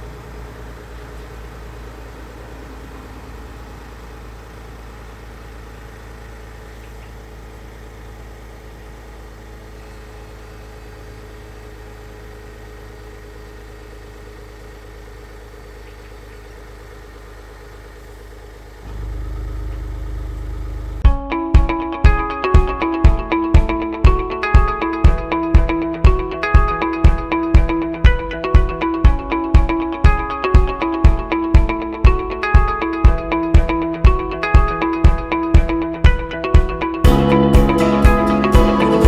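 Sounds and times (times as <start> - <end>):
car engine running steadily: 0.0 - 39.0.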